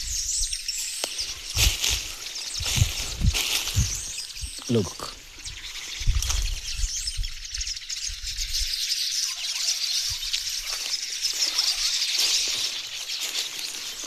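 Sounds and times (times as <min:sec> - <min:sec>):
small birds chirping: 0:00.0 - 0:14.0
wind buffeting microphone: 0:01.2 - 0:04.6, 0:05.3 - 0:08.7.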